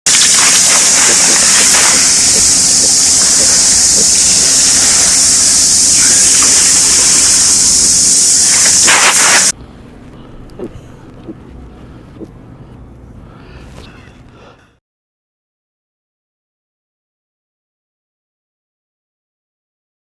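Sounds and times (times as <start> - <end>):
floodwater rushing and splashing: 0.1 - 9.5.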